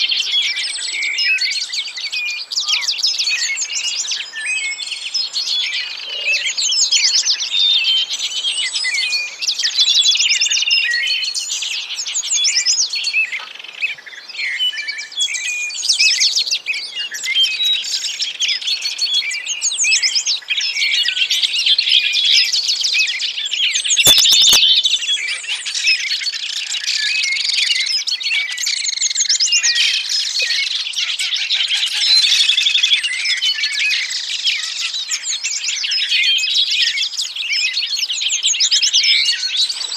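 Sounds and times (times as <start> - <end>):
songbirds chirping and trilling: 0.0 - 39.9
sharp click: 24.1 - 24.7.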